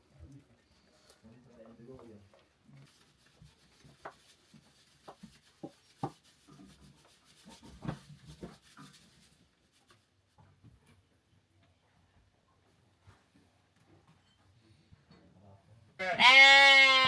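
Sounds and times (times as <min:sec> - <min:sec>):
soft knocks and rubbing: 0:02.7 - 0:11.0.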